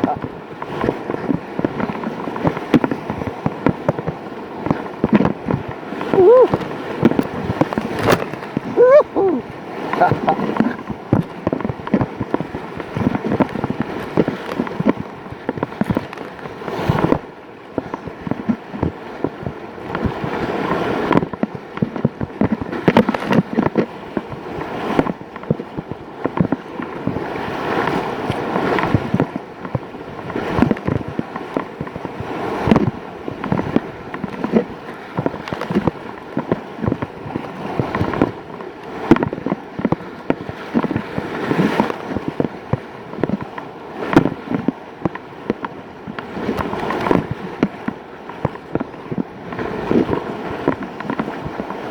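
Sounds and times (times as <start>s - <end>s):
rapids rushing: 0.0s - 21.3s
water slapping on microphone: 0.0s - 51.9s.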